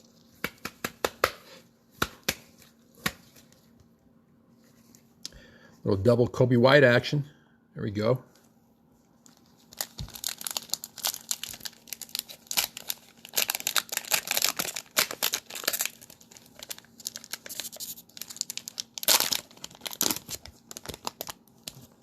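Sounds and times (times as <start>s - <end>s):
wrapper crinkling and tearing: 9.2s - 22.0s.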